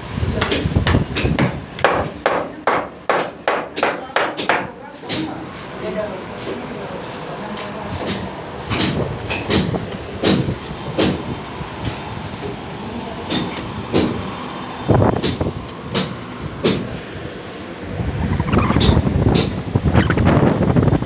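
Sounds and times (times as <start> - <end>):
steady background noise: 0.0 - 21.0
sharp knocks: 0.4 - 5.3, 8.0 - 11.2, 13.3 - 14.2, 15.2 - 16.9, 18.7 - 19.6.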